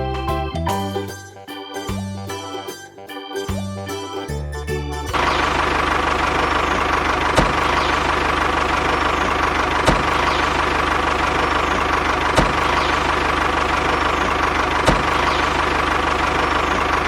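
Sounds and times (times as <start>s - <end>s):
tractor engine idling: 0.0s - 17.0s
short thump: 9.8s - 10.4s.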